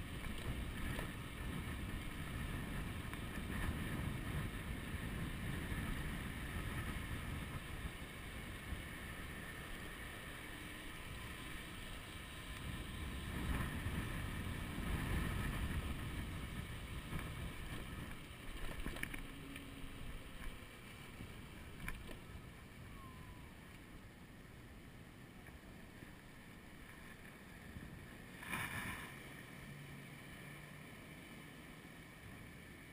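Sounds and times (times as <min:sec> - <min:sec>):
wind buffeting microphone: 0:00.0 - 0:10.0, 0:10.9 - 0:23.7
faint clicks: 0:17.1 - 0:19.7, 0:21.8 - 0:22.2.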